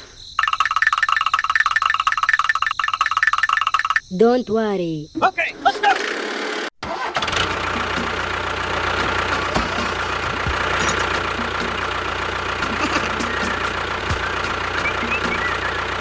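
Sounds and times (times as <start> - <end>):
faint regular ticks: 0.4 - 4.1.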